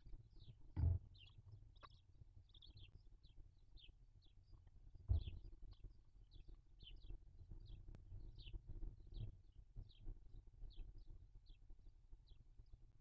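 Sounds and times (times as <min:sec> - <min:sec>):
bird chirping: 0:00.4 - 0:07.8
knocks: 0:00.8 - 0:01.0.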